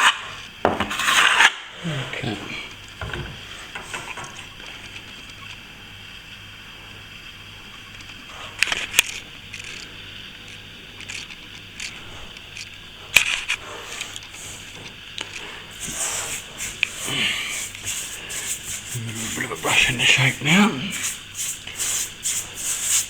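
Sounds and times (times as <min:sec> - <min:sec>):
plastering tool scraping: 0:00.8 - 0:01.5, 0:15.4 - 0:23.0.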